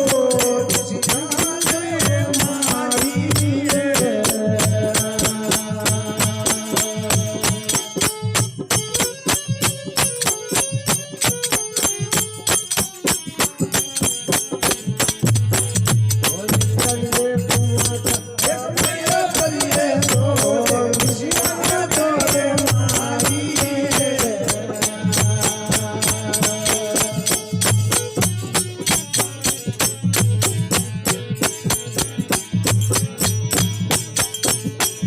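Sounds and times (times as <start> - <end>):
jingling percussion: 0.0 - 35.0
low drum beat: 12.0 - 34.8.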